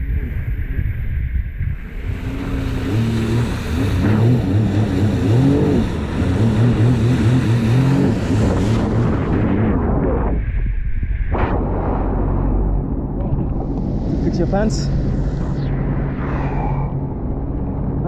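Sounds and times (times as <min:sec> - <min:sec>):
rushing water and wind: 0:01.4 - 0:09.7
watercraft engine revving: 0:01.8 - 0:10.2.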